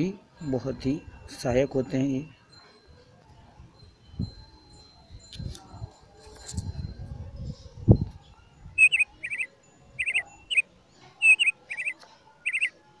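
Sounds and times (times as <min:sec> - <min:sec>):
small bird chirping: 0:08.8 - 0:12.8.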